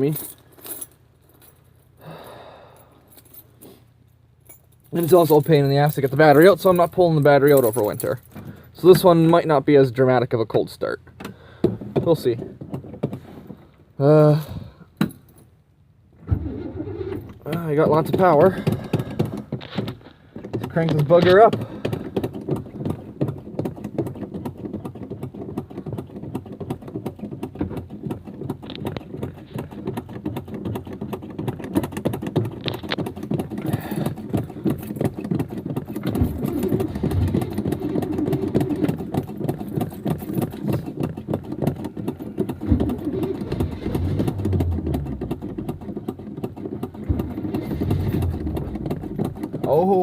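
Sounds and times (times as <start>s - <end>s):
starter motor cranking engine: 16.2s - 50.0s.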